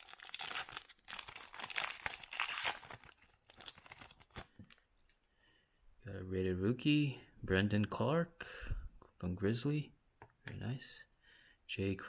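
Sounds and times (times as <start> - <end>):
wrapper tearing and crinkling: 0.0 - 4.5.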